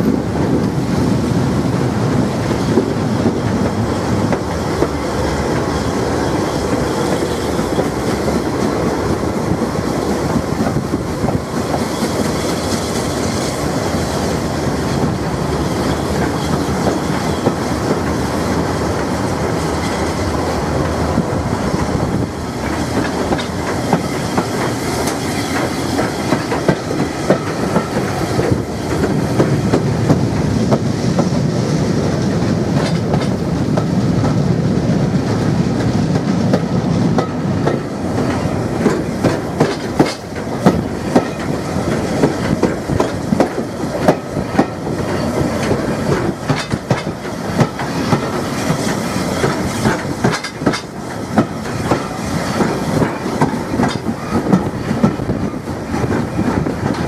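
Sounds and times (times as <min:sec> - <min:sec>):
train rumbling: 0:00.0 - 0:57.0
wheels clicking over rail joints: 0:21.8 - 0:31.3, 0:35.3 - 0:57.0.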